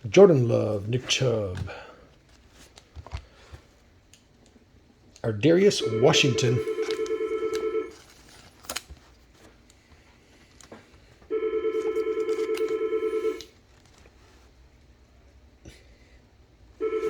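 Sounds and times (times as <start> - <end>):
telephone ringing: 5.7 - 8.0, 11.3 - 13.5, 16.8 - 17.0.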